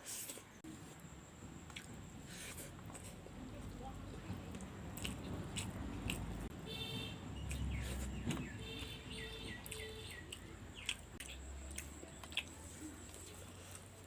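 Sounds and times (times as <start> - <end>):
birds chirping: 6.7 - 12.4.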